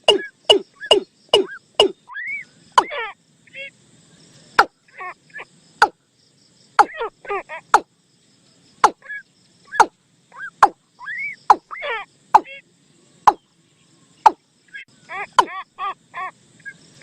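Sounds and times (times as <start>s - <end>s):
quick warbled chirping: 0.0s - 3.7s, 6.8s - 7.9s, 8.8s - 12.6s, 13.2s - 13.4s.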